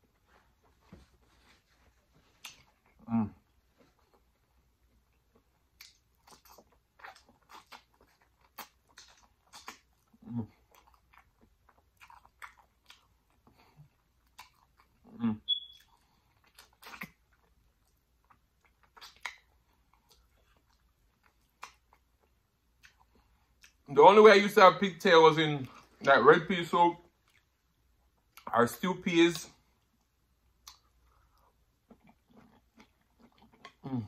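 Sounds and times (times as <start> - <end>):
person chewing meat off bones: 2.4 - 23.8, 29.8 - 34.0.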